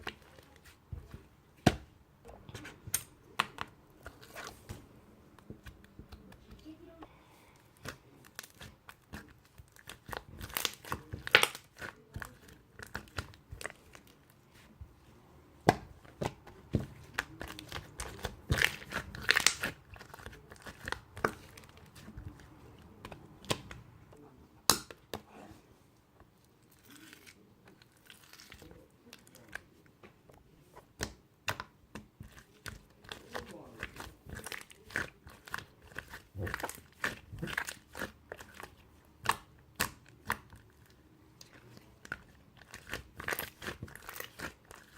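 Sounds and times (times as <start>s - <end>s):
slime squished by hand: 15.7s - 23.8s, 30.9s - 44.9s.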